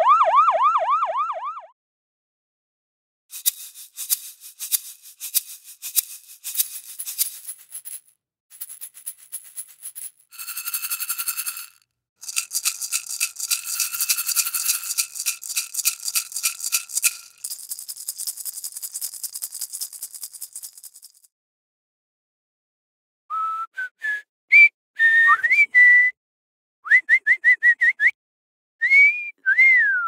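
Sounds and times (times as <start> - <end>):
metallic rattling and jingling: 3.4 - 21.2.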